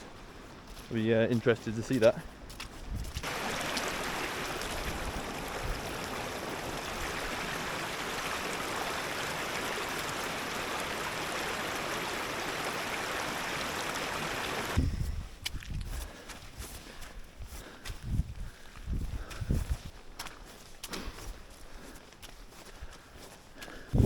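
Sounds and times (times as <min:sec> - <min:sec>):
stream rushing over rocks: 0:03.2 - 0:14.8.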